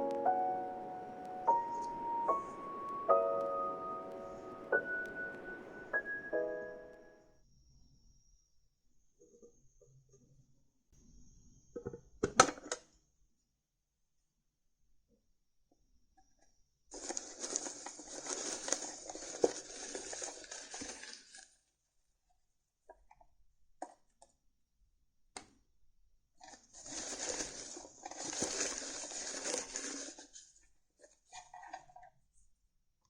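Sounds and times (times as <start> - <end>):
cards being shuffled: 26.7 - 30.3.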